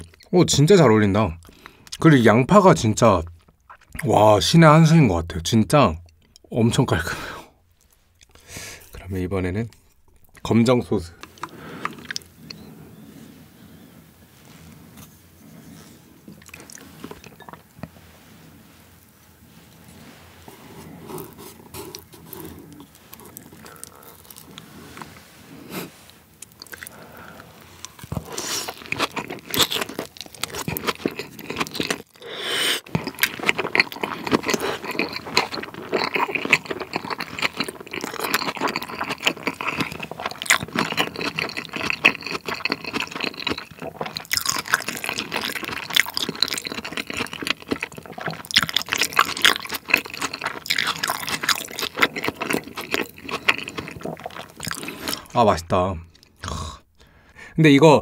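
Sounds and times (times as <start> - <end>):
wet chewing: 11.2 - 13.0, 14.7 - 17.9, 20.8 - 25.1, 25.7 - 55.4
crisp crunches: 21.2 - 25.2.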